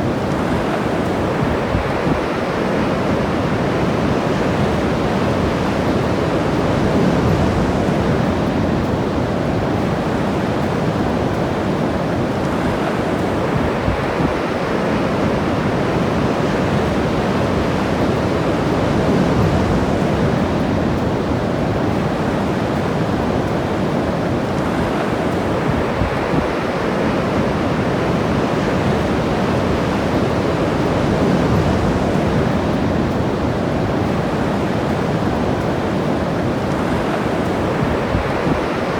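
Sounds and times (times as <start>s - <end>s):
ocean surf washing ashore: 0.0s - 38.9s.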